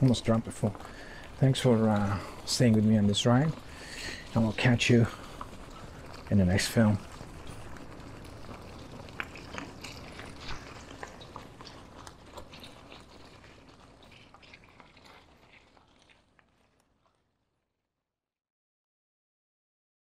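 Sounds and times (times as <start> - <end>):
low hiss: 0.0 - 11.4
small clicks and crackles: 0.0 - 17.7.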